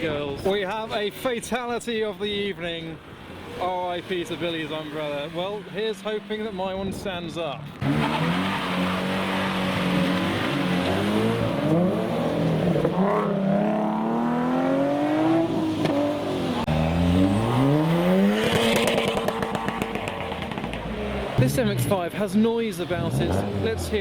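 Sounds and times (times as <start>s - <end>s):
car engine accelerating: 7.7s - 22.1s
tyre noise on wet road: 7.7s - 24.0s.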